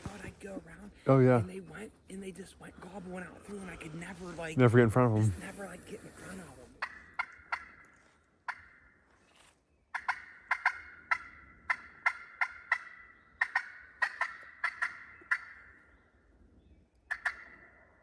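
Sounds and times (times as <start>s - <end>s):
wild turkeys gobbling: 5.6s - 9.0s, 9.9s - 15.9s, 17.1s - 18.0s.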